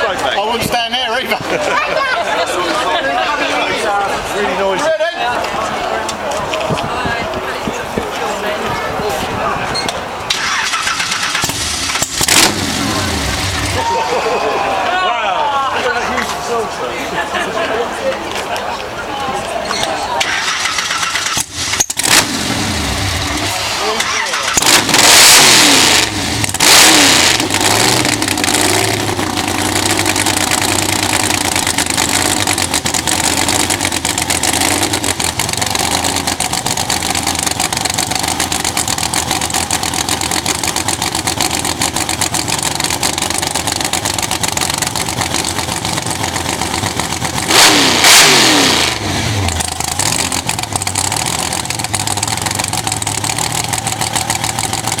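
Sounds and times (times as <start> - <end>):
engine revving: 10.3 - 13.8, 20.2 - 55.0
drag car engine idling: 10.4 - 13.8, 20.3 - 55.0.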